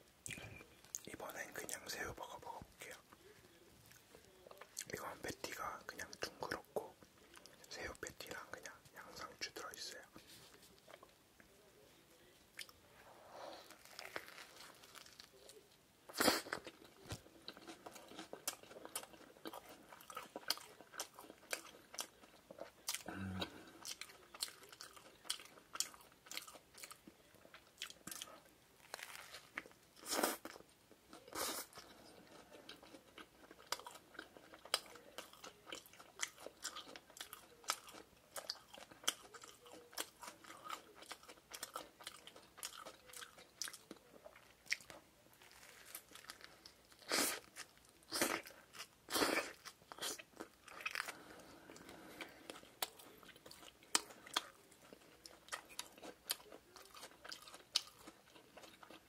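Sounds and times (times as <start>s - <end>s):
crunchy bites into burger: 13.5s - 30.6s, 32.6s - 54.5s.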